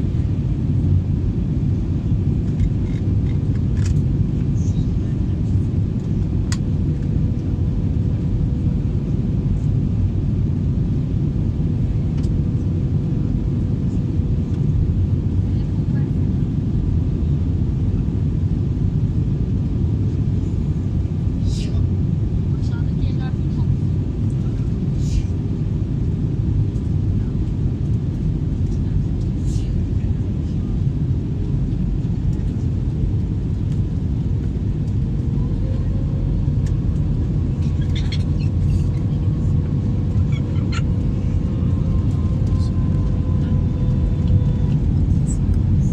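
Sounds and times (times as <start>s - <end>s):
airliner low rumble: 0.0s - 45.9s
faint steady hum: 0.0s - 45.9s.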